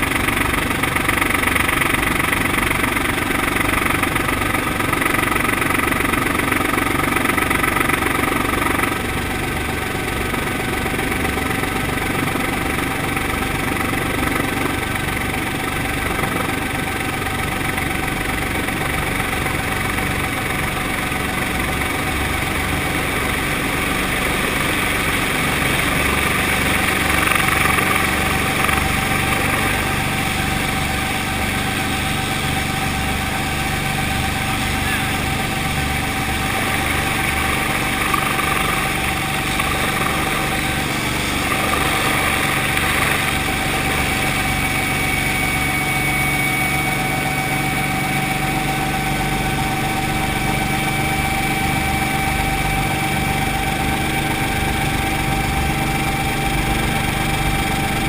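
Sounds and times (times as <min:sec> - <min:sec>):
helicopter engine and rotor: 0:00.0 - 0:58.0.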